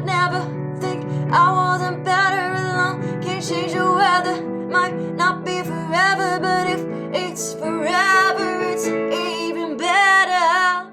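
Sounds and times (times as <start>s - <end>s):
person singing with vibrato: 0.0s - 10.9s.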